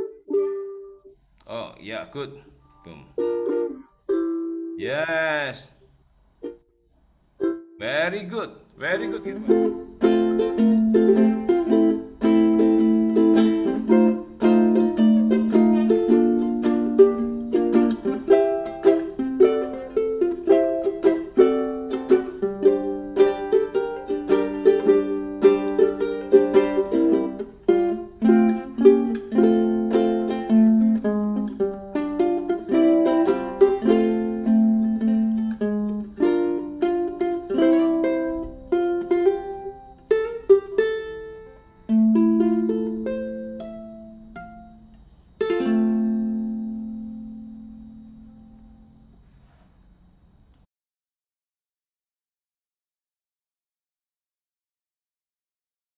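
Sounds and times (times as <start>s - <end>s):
fingerstyle ukulele melody: 0.0s - 1.2s, 3.1s - 4.8s, 6.4s - 6.8s, 7.4s - 7.8s, 9.0s - 49.0s.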